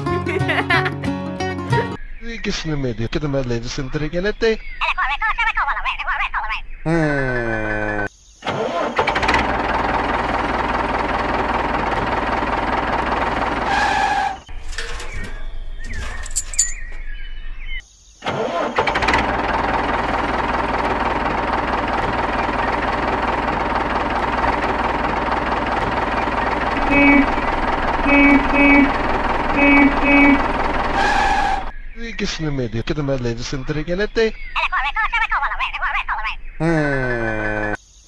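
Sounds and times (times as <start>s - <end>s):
tractor engine running: 8.8s - 17.8s, 18.4s - 37.8s.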